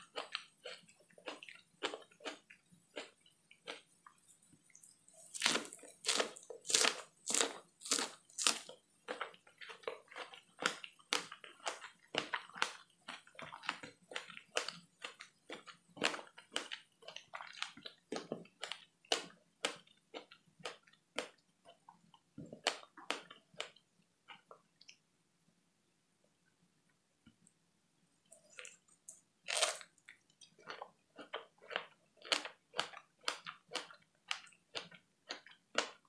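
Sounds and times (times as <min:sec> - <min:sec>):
chewing strawberry: 0:00.0 - 0:25.0, 0:28.3 - 0:36.0.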